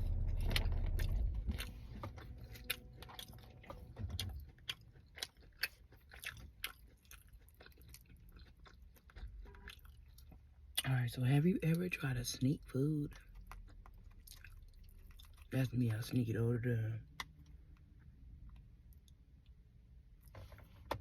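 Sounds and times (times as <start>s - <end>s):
low hum: 0.0s - 5.6s
chewing crunchy food: 0.1s - 10.9s, 13.0s - 16.0s.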